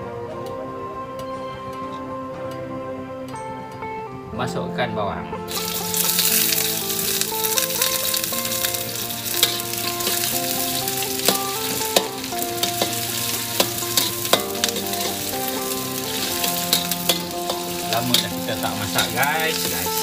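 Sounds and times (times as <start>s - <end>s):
onions sizzling in hot oil: 5.5s - 20.0s.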